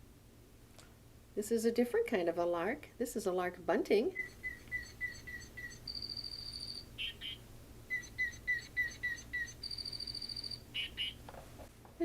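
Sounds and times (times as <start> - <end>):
toy bird playing birdsong: 4.1 - 11.3.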